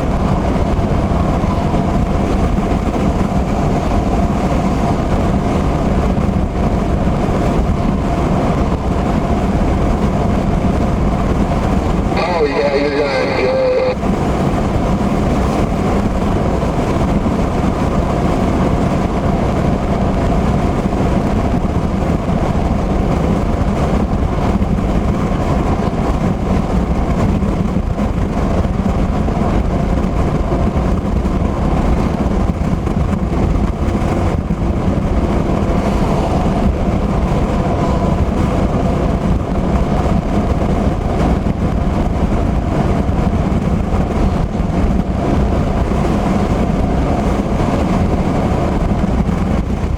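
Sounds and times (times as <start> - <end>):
car driving in heavy rain: 0.0 - 49.9
road and engine noise: 0.0 - 49.9
low hum: 33.9 - 41.5.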